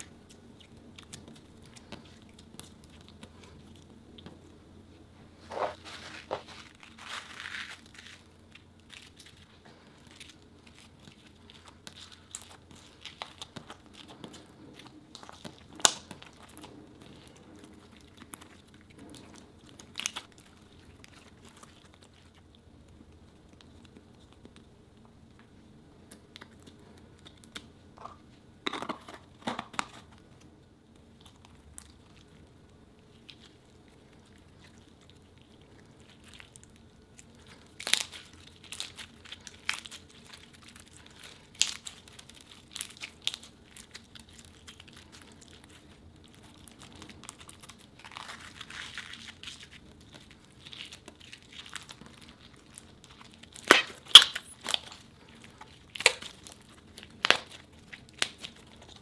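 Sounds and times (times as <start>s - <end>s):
slime crinkling and crackling: 0.0s - 59.0s
sharp snapping: 53.6s - 54.8s.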